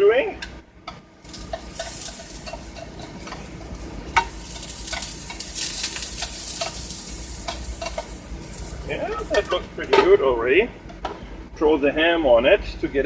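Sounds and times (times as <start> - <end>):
asparagus sizzling in a frying pan: 1.2 - 10.1
utensil scraping against pan: 1.3 - 10.2.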